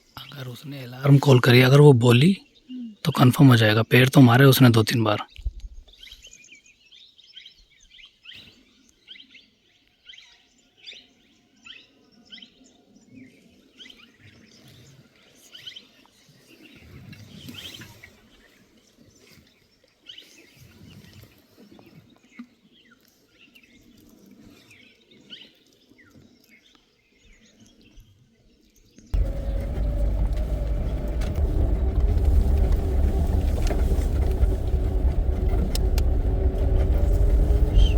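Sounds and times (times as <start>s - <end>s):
small birds chirping: 29.1s - 37.9s
faint low rumble: 29.2s - 37.9s.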